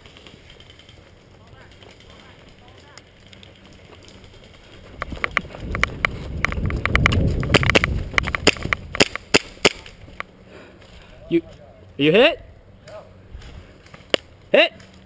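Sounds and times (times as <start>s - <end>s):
airsoft guns firing: 7.5s - 10.0s.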